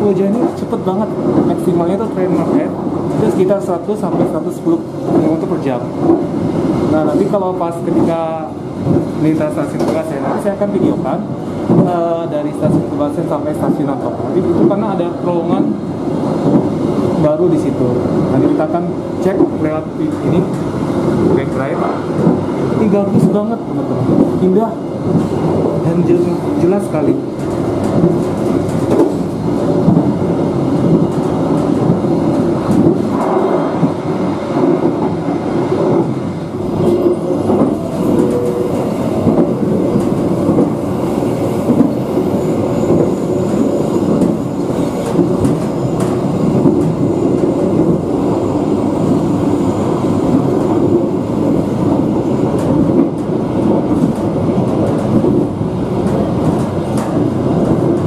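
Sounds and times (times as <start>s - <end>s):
train wheels rumbling on rails: 0.0s - 58.0s
clicking from the track: 9.7s - 10.4s, 27.3s - 30.1s, 56.0s - 58.0s.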